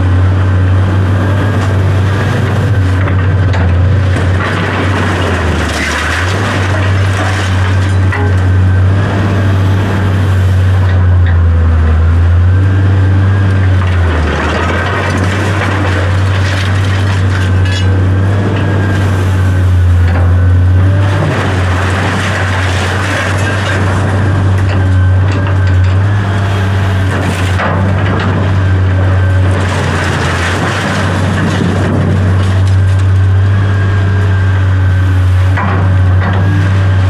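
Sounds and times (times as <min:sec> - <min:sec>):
large engine humming: 0:00.0 - 0:37.0
knocks and rattles: 0:02.5 - 0:08.6.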